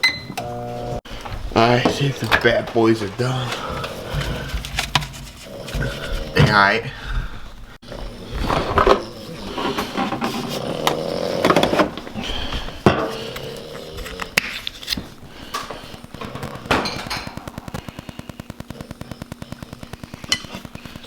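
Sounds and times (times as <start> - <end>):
dishes knocking and clinking: 12.8 - 13.3, 16.2 - 17.4.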